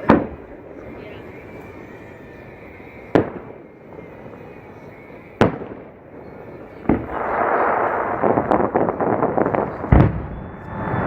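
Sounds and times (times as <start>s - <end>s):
firework booms: 0.0s - 0.6s, 3.1s - 3.6s, 5.4s - 5.9s, 6.8s - 11.0s
firework crackling: 0.0s - 11.0s.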